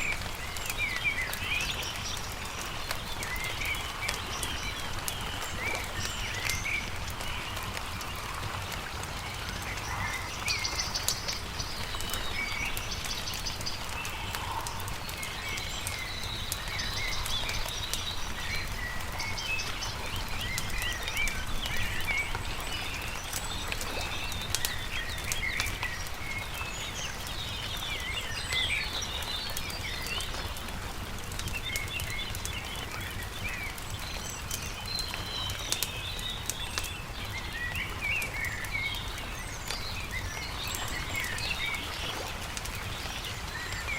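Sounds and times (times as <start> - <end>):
songbirds chirping and singing: 0.0 - 30.6
campfire crackling: 0.0 - 43.9.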